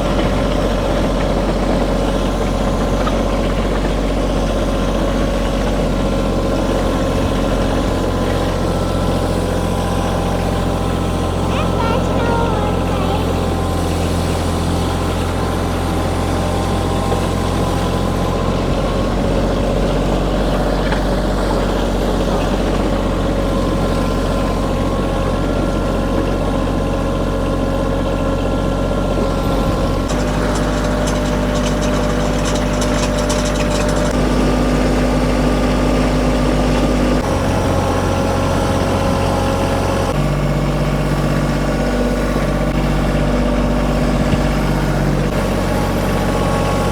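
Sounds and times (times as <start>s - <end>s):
tractor diesel engine under load: 0.0s - 46.9s
drag scraping along gravel: 5.8s - 22.7s, 29.2s - 35.6s.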